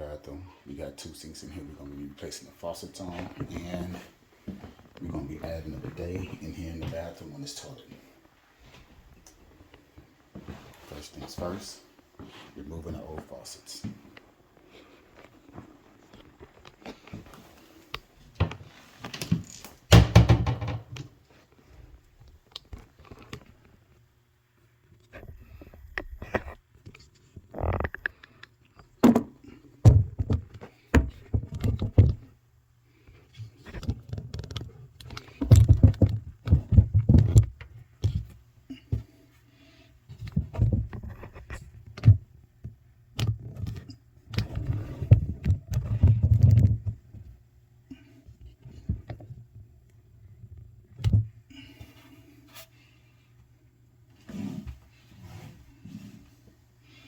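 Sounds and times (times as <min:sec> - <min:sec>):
knocks and clatter of plumbing work: 0:18.3 - 0:21.4, 0:25.0 - 0:32.4, 0:33.2 - 0:39.2, 0:40.1 - 0:47.4, 0:48.2 - 0:49.7, 0:50.3 - 0:52.6.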